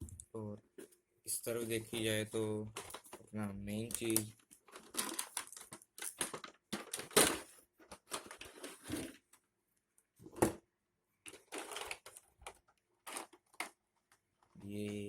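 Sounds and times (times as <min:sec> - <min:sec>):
packaging rustling and clicking: 0:02.7 - 0:09.3, 0:11.3 - 0:14.6.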